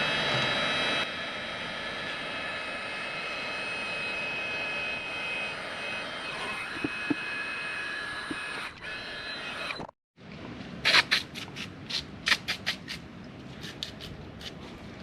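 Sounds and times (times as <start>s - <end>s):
power tool whining: 0.0s - 10.0s.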